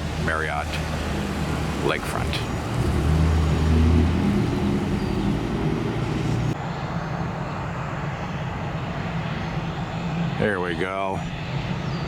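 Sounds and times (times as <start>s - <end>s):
low engine rumble: 0.0s - 6.6s.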